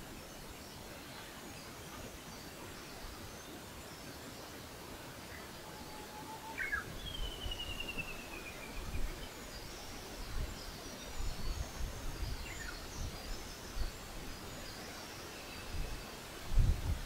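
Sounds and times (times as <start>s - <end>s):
steady outdoor hiss: 0.0s - 17.0s
wild birds calling: 5.2s - 8.8s.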